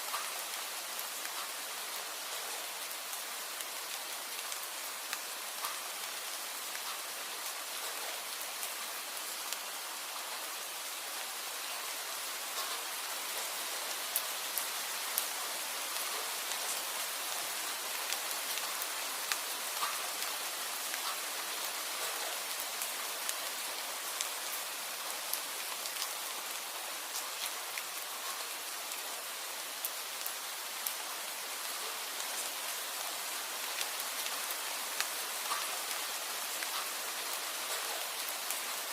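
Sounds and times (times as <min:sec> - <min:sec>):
steady rain: 0:00.0 - 0:38.9
raindrops ticking: 0:00.1 - 0:07.1, 0:17.7 - 0:28.5, 0:33.7 - 0:38.9.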